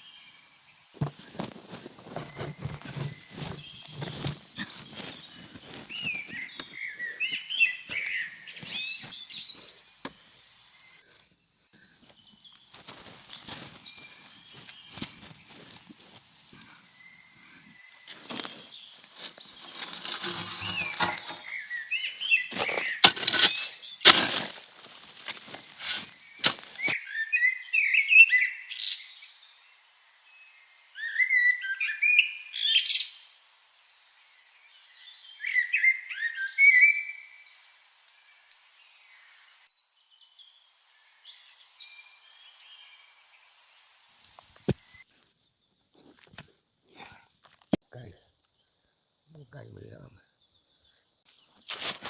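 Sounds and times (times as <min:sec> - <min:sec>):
birds chirping and singing: 0:00.4 - 0:28.5.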